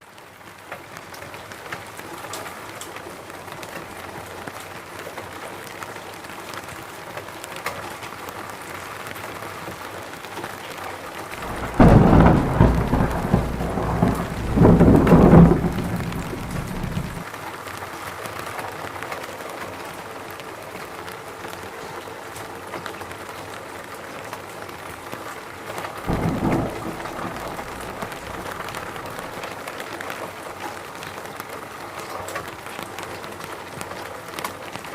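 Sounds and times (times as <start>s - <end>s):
steady rain falling: 0.0s - 34.9s
thunderclap rumbling: 11.4s - 17.2s, 26.1s - 29.5s.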